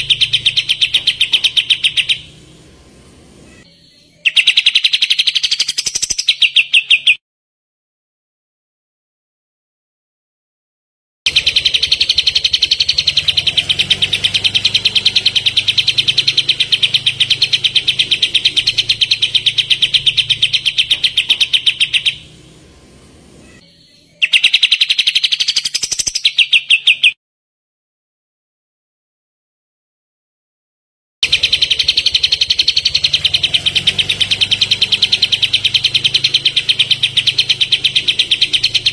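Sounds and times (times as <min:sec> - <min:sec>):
bird rapid trill: 0:00.0 - 0:07.2, 0:11.3 - 0:27.2, 0:31.2 - 0:38.9.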